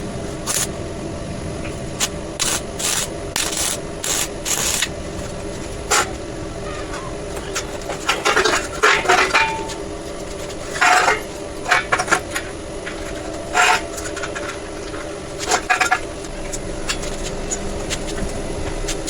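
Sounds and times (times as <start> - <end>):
steady background hum: 0.0 - 19.0
metal tools clinking and clattering: 5.9 - 16.0.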